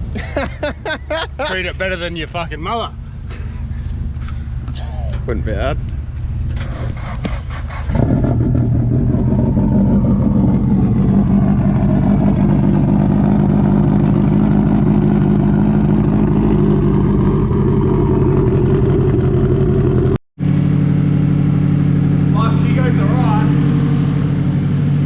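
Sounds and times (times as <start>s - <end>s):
car engine revving high: 6.6s - 25.0s.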